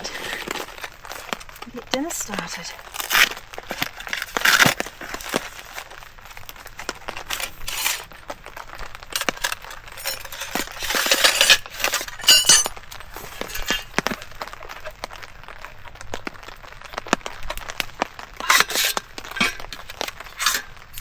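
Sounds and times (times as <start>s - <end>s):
metal table parts clattering: 7.3s - 8.1s, 9.2s - 14.3s, 18.4s - 21.0s.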